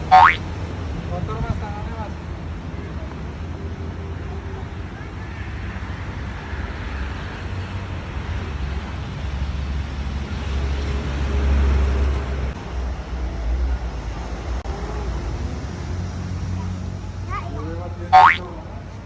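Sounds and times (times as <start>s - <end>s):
vehicle passing close: 0.0s - 1.5s, 5.6s - 12.6s
road traffic rumbling: 0.0s - 19.0s.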